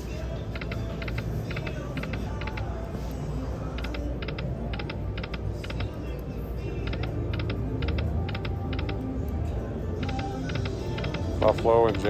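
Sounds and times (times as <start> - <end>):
slot machine reels clicking: 0.4 - 2.7, 3.7 - 6.0, 6.8 - 9.3, 10.0 - 12.0
casino floor din: 10.0 - 12.0.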